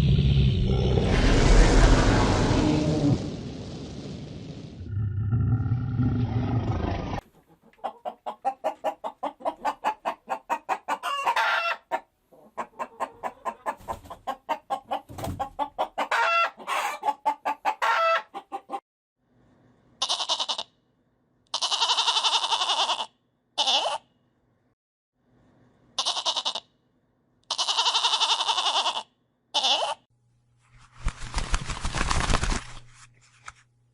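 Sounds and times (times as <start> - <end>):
animal low rumble: 0.0 - 7.2
animal longer calls: 29.6 - 30.0
animal short repeated calls: 29.6 - 30.0.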